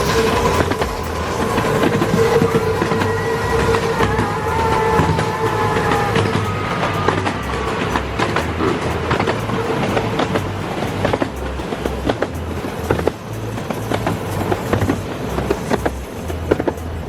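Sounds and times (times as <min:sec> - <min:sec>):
high ringing squeal: 0:00.0 - 0:17.0
low train rumble: 0:00.0 - 0:17.0
wheels clicking over rail joints: 0:00.0 - 0:17.0.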